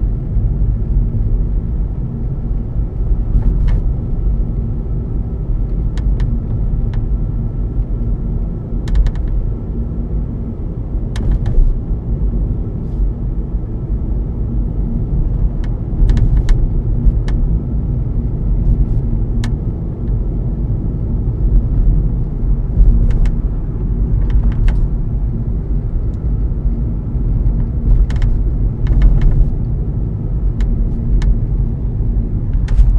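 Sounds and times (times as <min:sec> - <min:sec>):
road noise in car cabin: 0:00.0 - 0:32.9.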